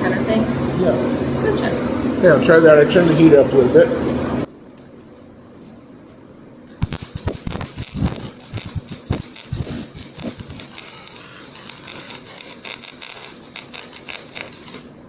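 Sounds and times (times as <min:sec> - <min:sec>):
welding arc crackling and popping: 0:06.7 - 0:15.0.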